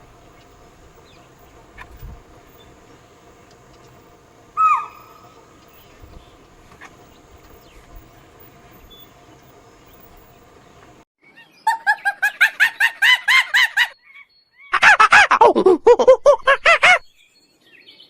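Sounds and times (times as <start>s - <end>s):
bird short repeated calls: 4.5s - 7.7s.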